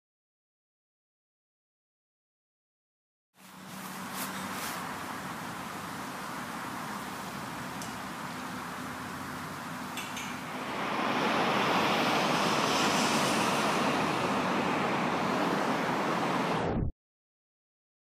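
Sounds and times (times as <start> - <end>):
truck engine rushing: 3.6 - 16.9.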